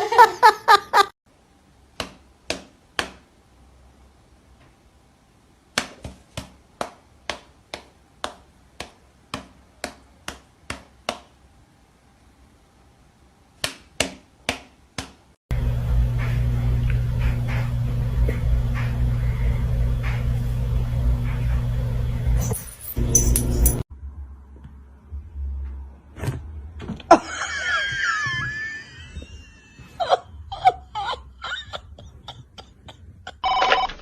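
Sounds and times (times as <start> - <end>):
steady low hum: 15.5 - 23.8.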